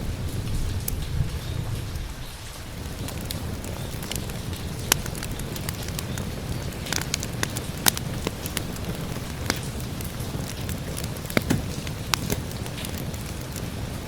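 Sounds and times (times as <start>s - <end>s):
rain hissing: 0.0s - 14.0s
wood fire crackling and popping: 2.6s - 14.0s.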